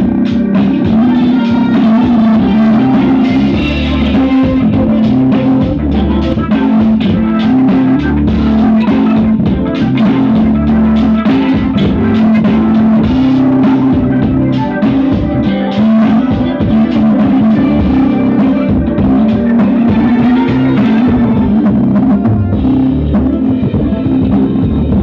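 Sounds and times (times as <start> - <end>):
loud rock music through speakers: 0.0 - 25.0.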